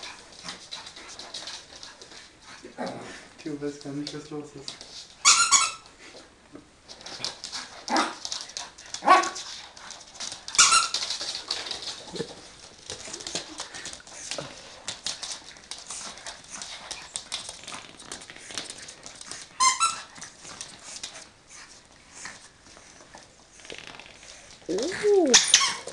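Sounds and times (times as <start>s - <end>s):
squeaky toy squealing: 24.7s - 25.9s.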